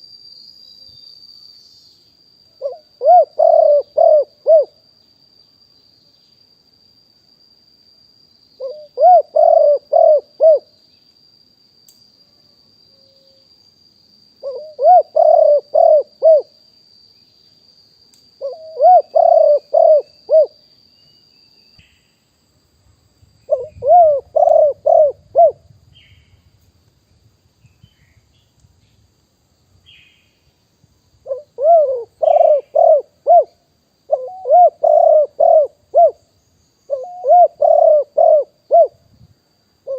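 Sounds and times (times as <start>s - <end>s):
dove cooing: 2.6s - 4.8s, 8.6s - 10.7s, 14.4s - 16.5s, 18.4s - 20.6s, 23.5s - 25.6s, 31.2s - 36.2s, 36.9s - 39.0s.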